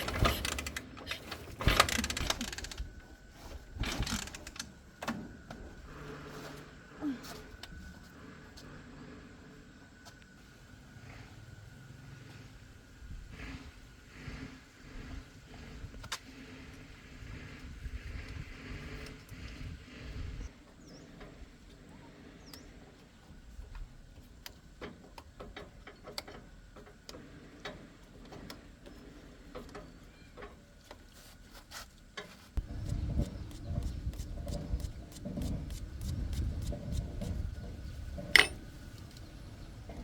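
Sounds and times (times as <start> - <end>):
hand tools clinking on metal: 38.2 - 38.6.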